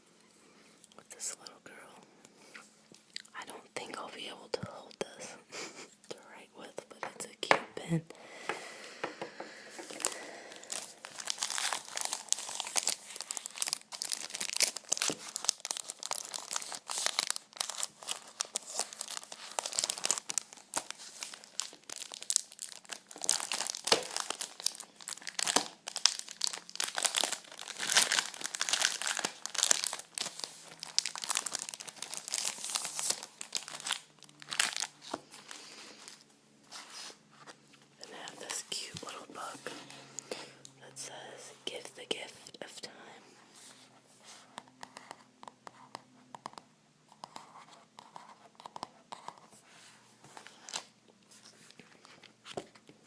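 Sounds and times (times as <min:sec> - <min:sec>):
plastic wrapping crumpled and torn: 0:09.8 - 0:39.9.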